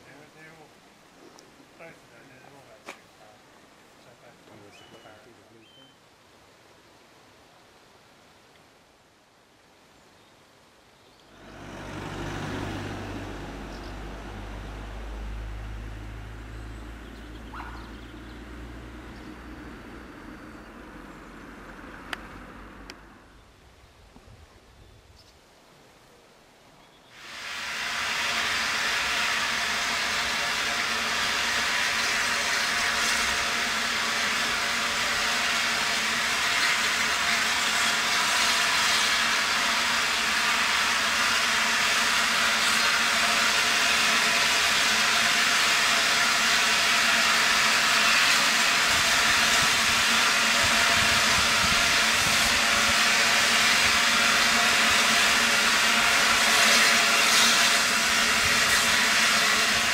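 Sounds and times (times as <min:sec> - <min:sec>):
steam locomotive hissing steam: 0:11.3 - 0:23.3, 0:27.2 - 0:59.9.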